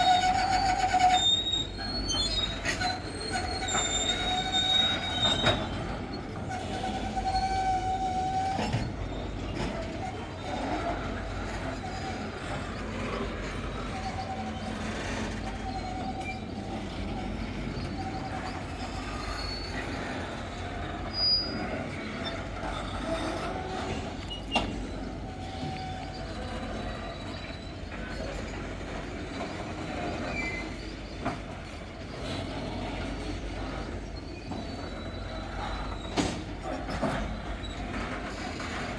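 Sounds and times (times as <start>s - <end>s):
freight train rumble: 0.0s - 38.9s
train wheels squealing: 0.0s - 38.9s.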